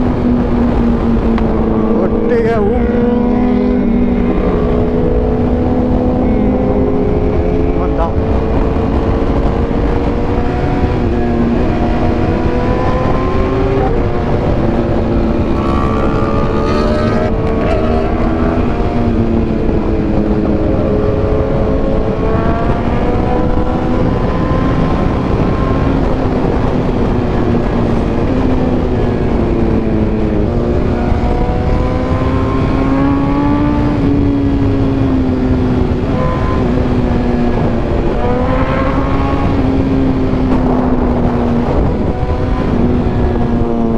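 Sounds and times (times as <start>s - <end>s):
wind noise: 0.0s - 43.9s
motorcycle engine running: 13.1s - 21.7s.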